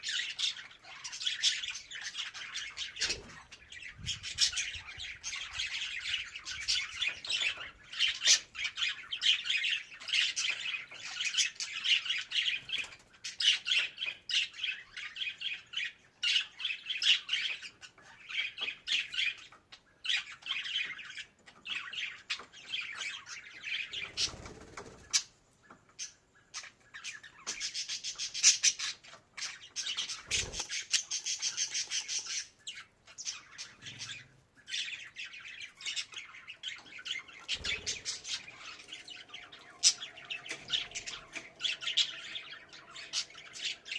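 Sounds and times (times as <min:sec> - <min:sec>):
budgerigar warbling and chirping: 0:26.0 - 0:43.9.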